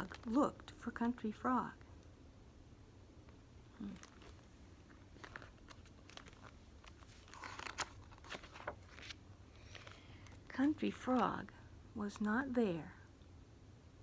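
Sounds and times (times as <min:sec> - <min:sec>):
paper page rustling: 0:03.8 - 0:11.5.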